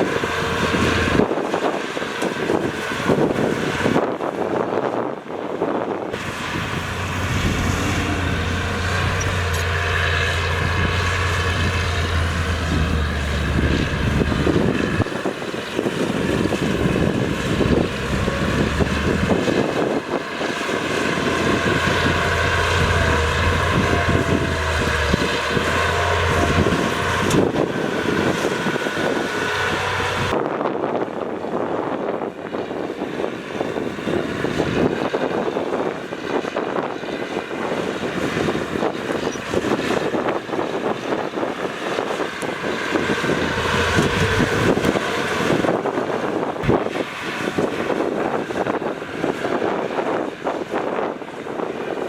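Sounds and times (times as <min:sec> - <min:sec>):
diesel engine droning: 0:00.0 - 0:52.0
constant rattling: 0:06.2 - 0:29.7, 0:39.1 - 0:48.1.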